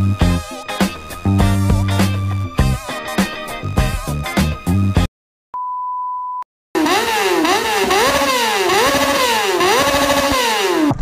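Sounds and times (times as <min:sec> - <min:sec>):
background music: 0:00.0 - 0:05.1
motorcycle engine revving: 0:06.8 - 0:11.0.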